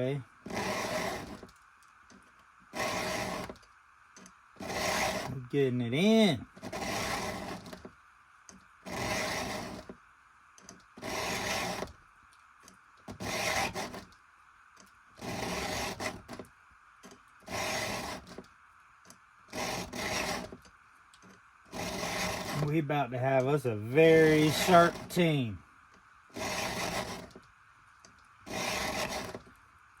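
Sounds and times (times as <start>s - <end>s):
file rasping on chainsaw chain: 0.4s - 1.4s, 2.7s - 3.6s, 4.6s - 5.4s, 6.0s - 7.8s, 8.9s - 9.9s, 11.0s - 11.9s, 13.1s - 14.1s, 15.2s - 16.3s, 17.4s - 18.4s, 19.5s - 20.6s, 21.7s - 22.8s, 23.4s - 25.5s, 26.3s - 27.4s, 28.4s - 29.5s.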